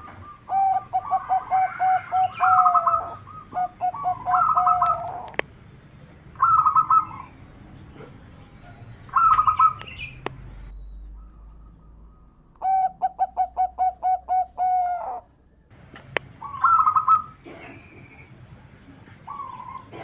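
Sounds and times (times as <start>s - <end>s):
dove cooing: 0.0s - 5.4s, 6.4s - 8.1s, 8.7s - 10.2s, 11.1s - 15.3s, 16.3s - 18.2s, 19.0s - 20.0s.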